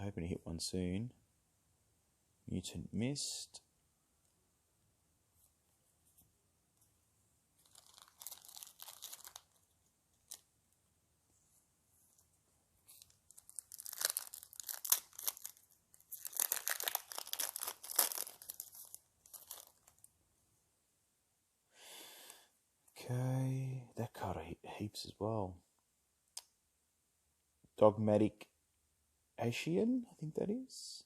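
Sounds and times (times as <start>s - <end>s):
foil wrapper tearing and crinkling: 7.6s - 9.6s, 12.9s - 20.1s.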